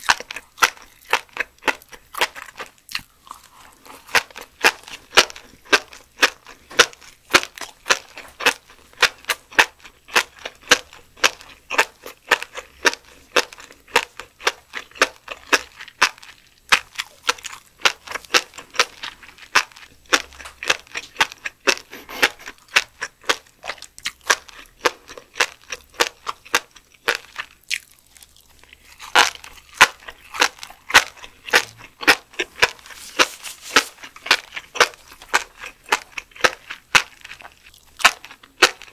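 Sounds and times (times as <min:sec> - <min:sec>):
crunchy chewing: 0:00.0 - 0:38.9.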